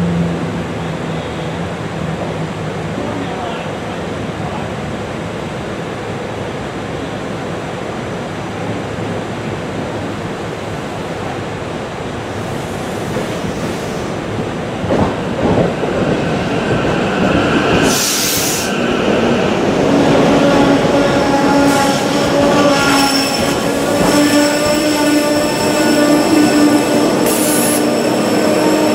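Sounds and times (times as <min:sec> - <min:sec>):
train wheels rumbling on rail: 0:00.1 - 0:28.9
air hiss: 0:12.4 - 0:14.4, 0:17.8 - 0:18.8.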